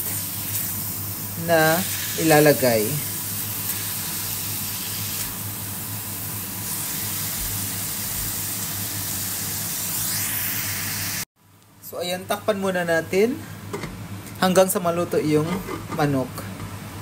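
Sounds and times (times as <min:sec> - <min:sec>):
chicken and onions sizzling: 0:00.0 - 0:11.3.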